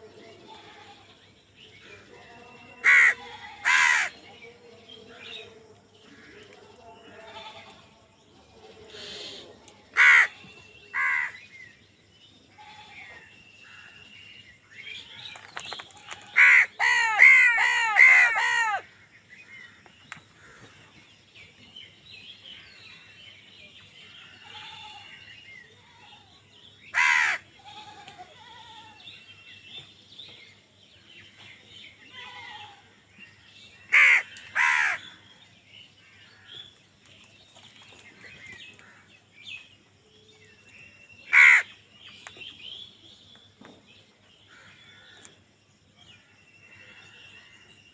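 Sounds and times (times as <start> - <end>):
faint small birds chirping: 0.0 - 47.9
crows cawing: 2.8 - 4.2, 10.0 - 11.4, 16.1 - 18.9, 27.0 - 27.4, 33.9 - 35.1, 41.3 - 41.7.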